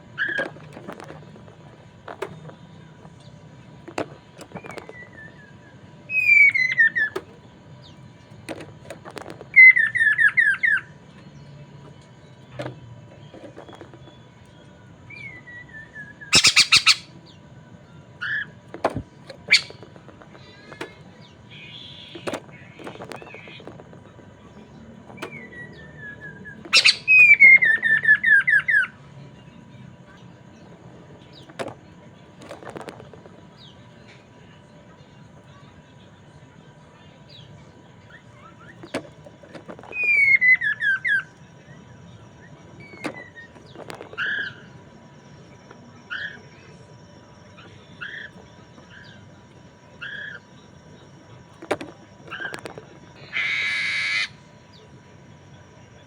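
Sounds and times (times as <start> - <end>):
bird singing whistled notes: 4.5 - 7.2, 13.6 - 17.4, 19.5 - 19.8, 25.2 - 29.0, 39.9 - 51.4
bird short sharp calls: 16.3 - 17.1, 26.7 - 27.5, 53.2 - 54.4.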